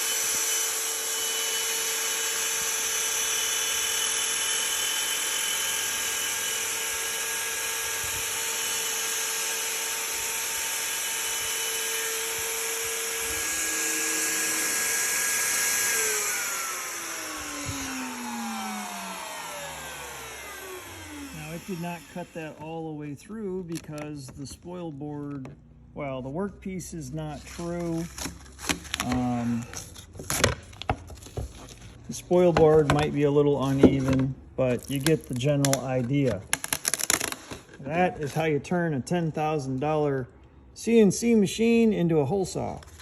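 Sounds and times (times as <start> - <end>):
router whining and winding down: 0.0 - 23.0.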